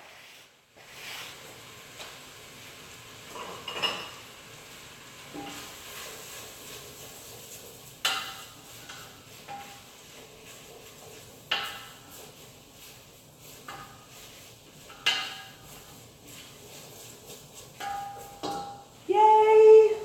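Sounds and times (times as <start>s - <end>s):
metal utensils and pans clinking: 3.3s - 4.4s, 5.3s - 18.9s.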